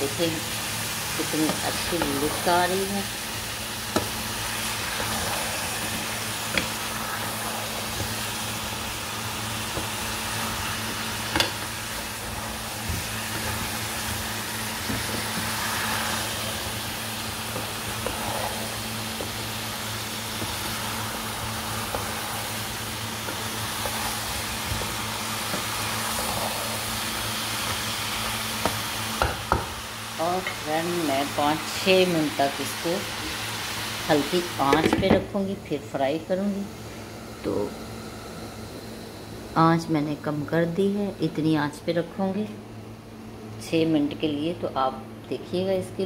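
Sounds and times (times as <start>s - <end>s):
food sizzling in a pan: 0.0s - 35.6s
low steady hum: 0.0s - 46.0s.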